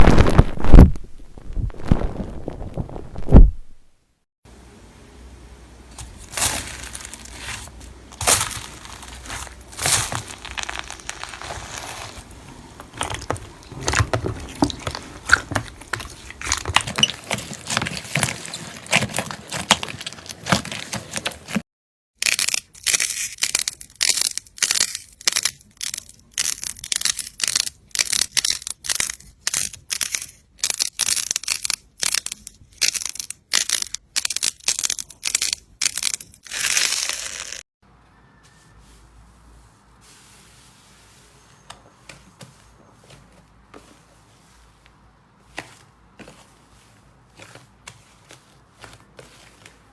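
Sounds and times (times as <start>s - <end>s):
crisp crunches: 5.9s - 21.6s, 22.2s - 37.6s
slime crackling and popping: 6.0s - 21.6s, 22.2s - 37.6s.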